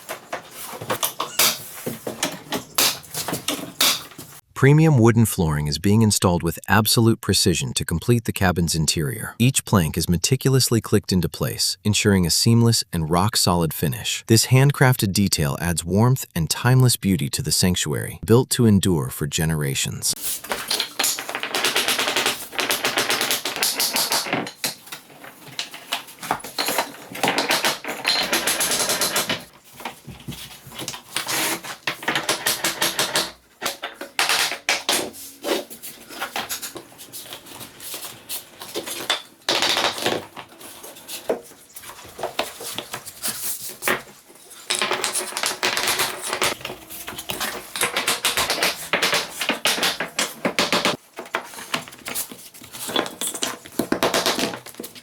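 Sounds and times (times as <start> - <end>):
tapping and knocking on floor planks: 0.0 - 4.4, 20.2 - 55.0.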